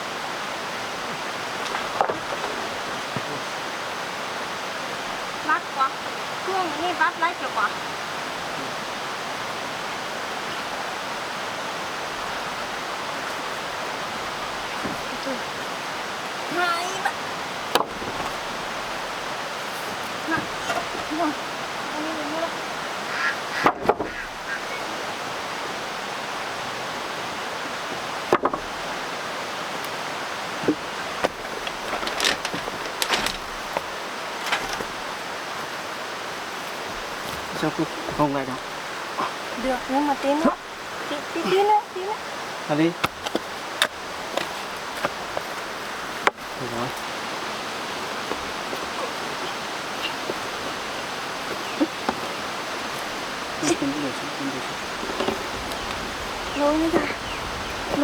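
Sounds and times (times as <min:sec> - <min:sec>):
rushing water: 0:00.0 - 0:58.0
scrapes and knocks: 0:30.6 - 0:35.0.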